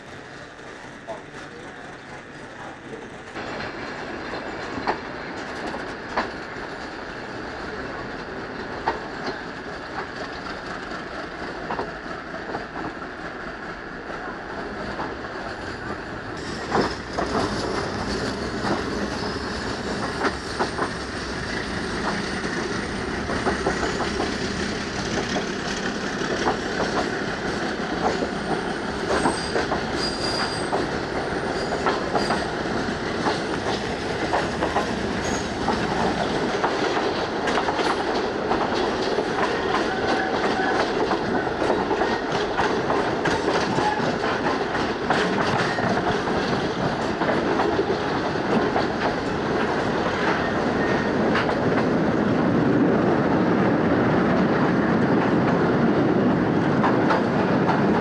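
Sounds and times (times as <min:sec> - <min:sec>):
train wheels clattering over joints: 0:14.7 - 0:52.0
faint high wheel squeals: 0:29.2 - 0:30.8.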